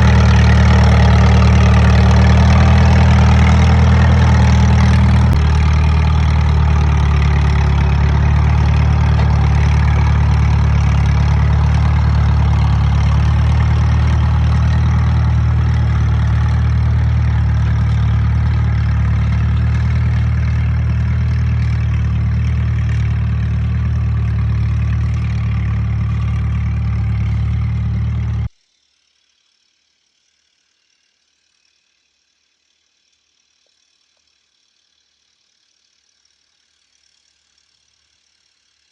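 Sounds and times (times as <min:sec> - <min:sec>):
tractor engine running: 0:00.0 - 0:28.5.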